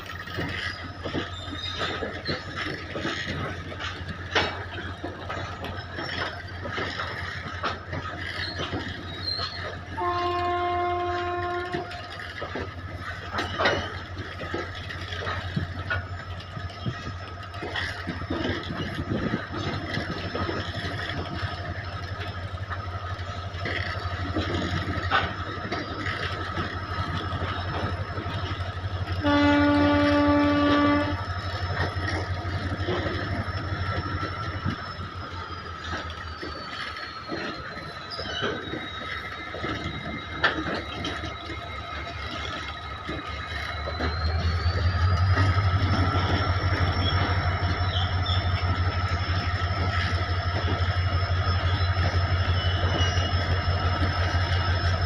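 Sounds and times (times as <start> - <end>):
train wheels clattering: 0.0 - 55.0
train horn: 9.9 - 12.1, 29.1 - 31.2.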